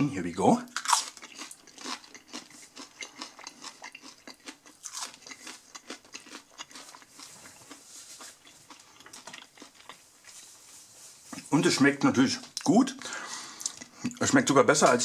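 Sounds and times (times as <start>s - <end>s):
crunching fried onion ring: 0.6s - 10.4s.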